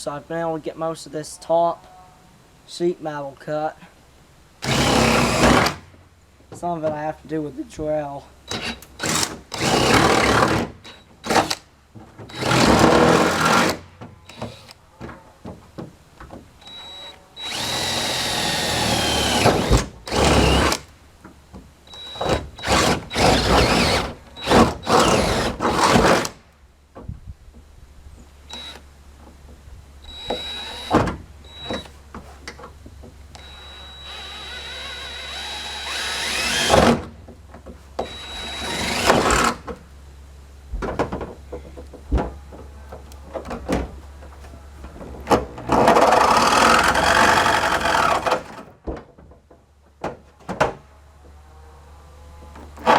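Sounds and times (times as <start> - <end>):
electric drill cutting sheet metal: 17.4 - 20.8, 22.0 - 26.3, 33.4 - 36.9, 38.0 - 39.6.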